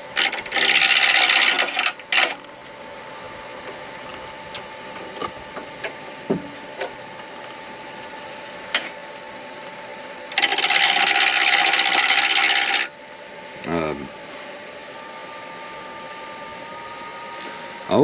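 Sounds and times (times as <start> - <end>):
lathe humming: 0.0 - 18.0
turning tool scraping acrylic: 0.2 - 2.4, 10.3 - 12.9.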